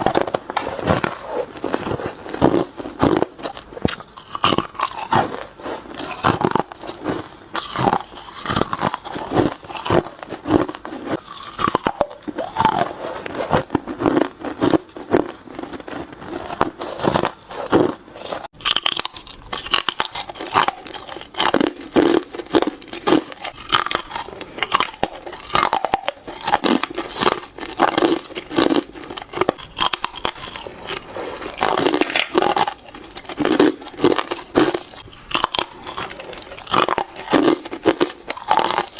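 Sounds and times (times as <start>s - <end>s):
teeth crunching ice: 0.0s - 38.9s.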